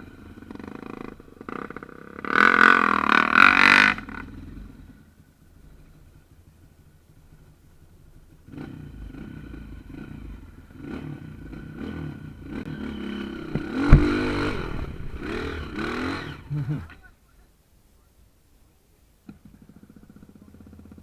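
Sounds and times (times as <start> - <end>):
off-road vehicle engine revving: 0.0 - 5.0, 8.4 - 17.0
sharp knock: 13.4 - 16.2.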